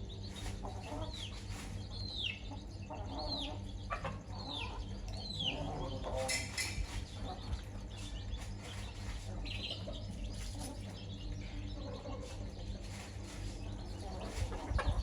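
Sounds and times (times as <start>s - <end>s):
chicks peeping: 0.0s - 15.0s
hen clucking softly: 0.5s - 7.8s, 14.2s - 15.0s
steady low rumble: 6.8s - 15.0s.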